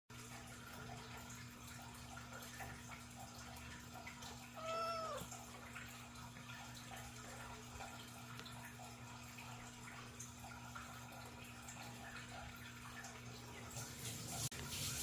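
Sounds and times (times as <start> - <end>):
cat meowing: 4.4 - 5.4.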